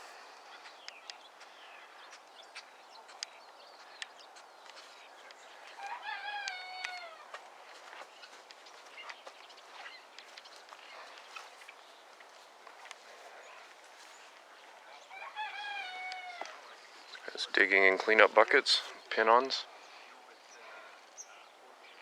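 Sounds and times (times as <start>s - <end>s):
faint clicks and ticks: 0.7s - 5.8s, 10.1s - 13.1s
distant rooster crowing: 5.7s - 7.4s, 14.9s - 16.8s.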